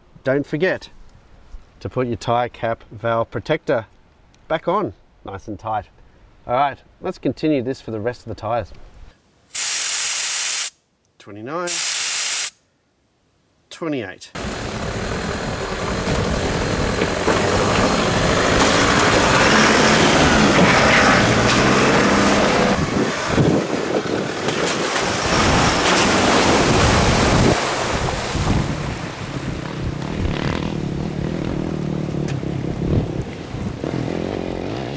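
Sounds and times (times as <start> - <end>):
truck engine driving: 14.4 - 34.9
wind noise on microphone: 14.9 - 34.0.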